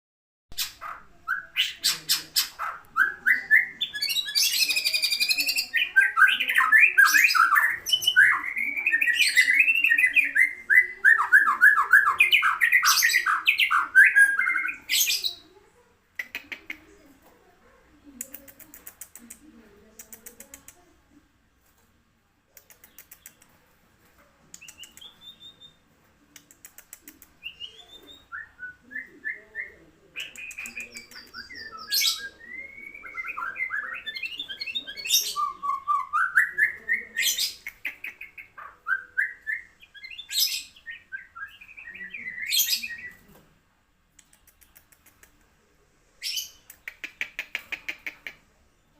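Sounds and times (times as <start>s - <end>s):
bird singing whistled phrases: 24.6s - 25.8s, 27.4s - 36.8s.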